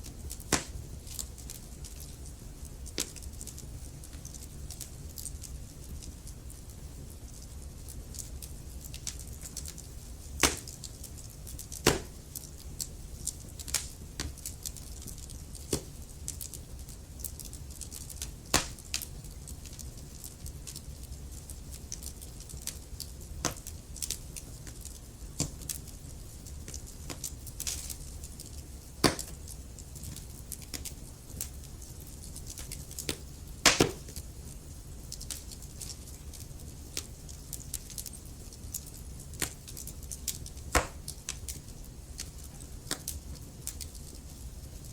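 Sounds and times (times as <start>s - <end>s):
logs crackling and popping: 0.0s - 44.9s
wood fire rumbling and hissing: 0.0s - 44.9s.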